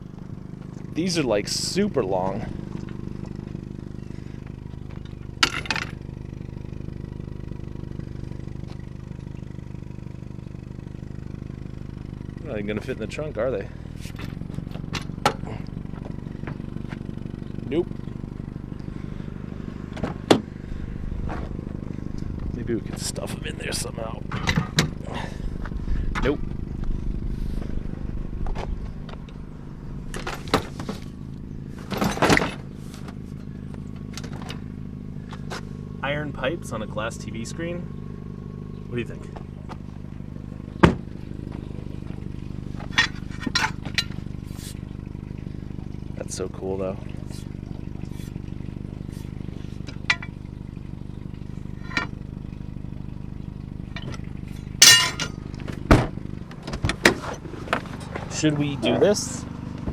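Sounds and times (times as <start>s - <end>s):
engine idling: 0.0s - 59.9s
metal pipes clanking: 22.1s - 25.4s, 41.5s - 45.0s, 46.4s - 50.6s, 51.6s - 52.2s, 53.9s - 55.9s
metal pipes clattering: 42.8s - 44.8s, 54.0s - 55.5s.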